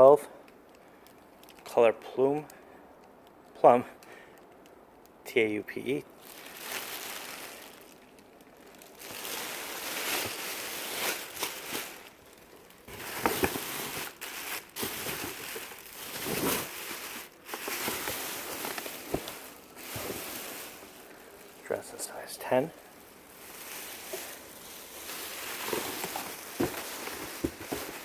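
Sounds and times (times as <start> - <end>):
fabric and packaging rustling: 6.0 - 28.0.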